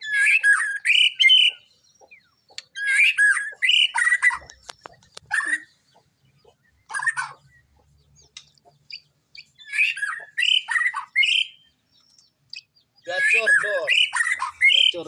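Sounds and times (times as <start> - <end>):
bird singing whistled notes: 0.0 - 5.8, 6.7 - 15.0.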